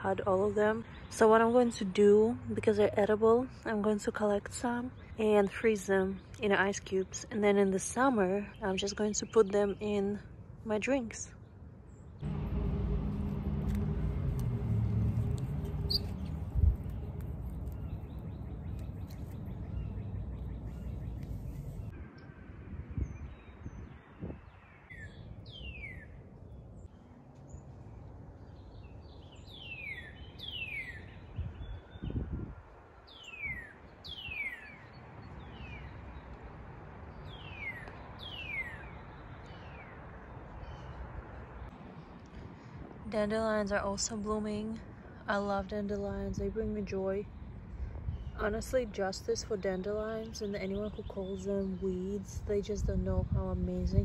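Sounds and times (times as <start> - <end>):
bird singing downward notes: 12.2 - 21.9
loud low rumble: 12.2 - 21.9.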